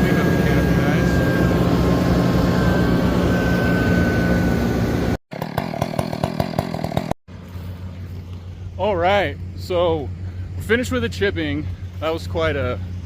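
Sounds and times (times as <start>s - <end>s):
gas engine machinery running: 0.0s - 13.0s
wood being cut with knocking: 5.3s - 7.2s.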